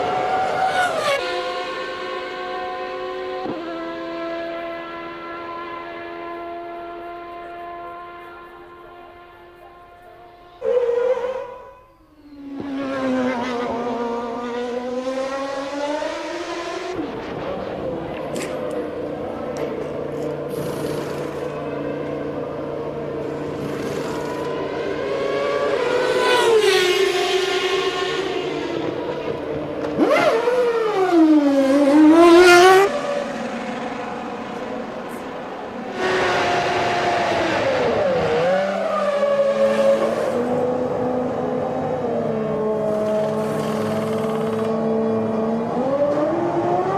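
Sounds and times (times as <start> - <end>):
race car engines at high revs: 0.0 - 11.0, 12.3 - 46.9
faint steady engine noise: 40.2 - 46.2.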